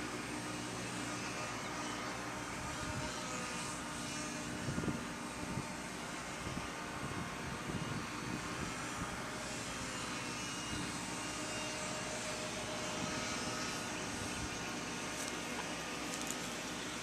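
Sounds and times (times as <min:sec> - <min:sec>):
small electric motor whine: 0:00.0 - 0:17.0
wind rumble on microphone: 0:04.5 - 0:05.8, 0:06.4 - 0:09.2.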